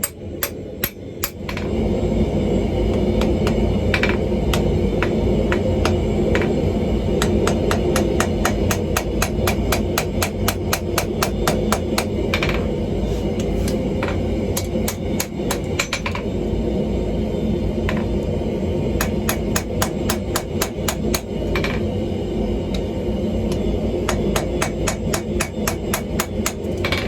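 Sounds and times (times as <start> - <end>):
low rumble: 1.4 - 10.2.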